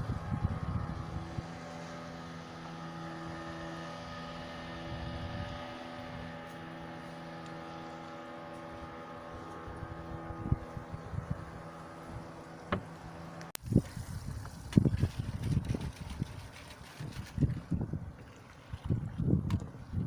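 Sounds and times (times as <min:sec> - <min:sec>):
wind gusts on microphone: 0:00.0 - 0:02.0, 0:04.6 - 0:06.4, 0:08.8 - 0:13.0, 0:13.6 - 0:20.0
boat engine running: 0:00.0 - 0:20.0.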